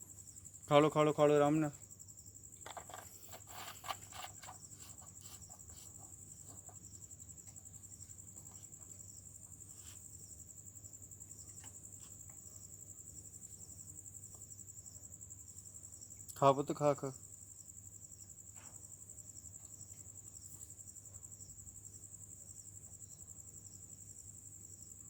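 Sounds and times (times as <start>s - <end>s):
crickets chirring: 0.0s - 25.0s.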